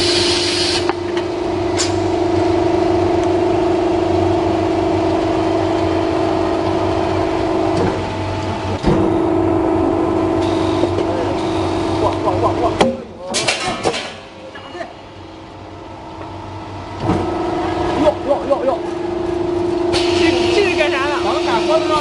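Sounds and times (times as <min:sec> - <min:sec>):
punching machine humming: 0:00.0 - 0:22.0.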